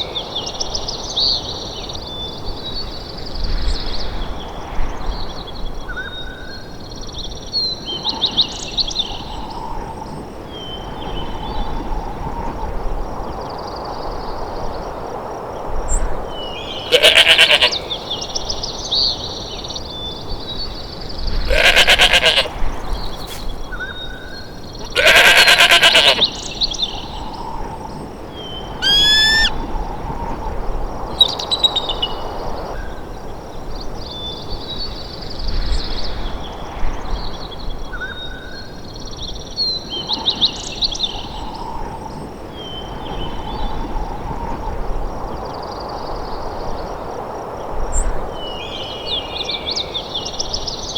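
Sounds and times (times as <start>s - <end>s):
loud wavering animal calls: 16.8s - 17.9s, 21.5s - 22.5s, 24.9s - 26.2s, 28.8s - 29.6s
short rising animal call: 16.9s - 17.8s, 28.8s - 29.5s
small bird chirps: 28.8s - 29.5s.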